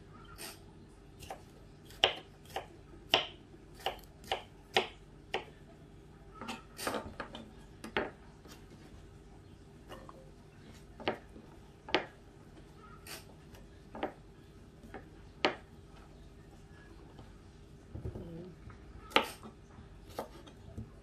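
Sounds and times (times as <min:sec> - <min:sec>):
knife chopping on wooden board: 0:01.3 - 0:05.5.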